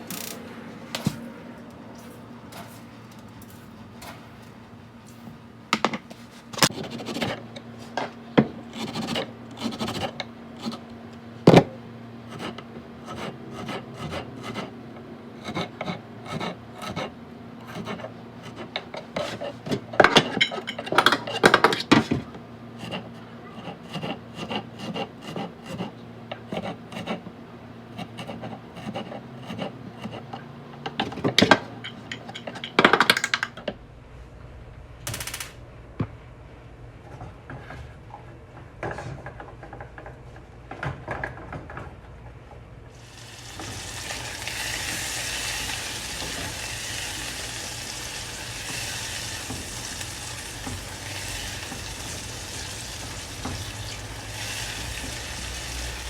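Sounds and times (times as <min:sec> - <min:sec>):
utensils scraping dishes: 0:15.4 - 0:22.2.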